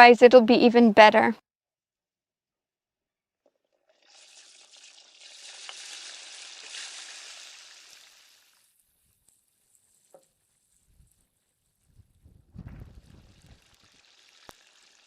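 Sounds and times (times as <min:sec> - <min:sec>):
food sizzling in hot oil: 0:04.0 - 0:15.0.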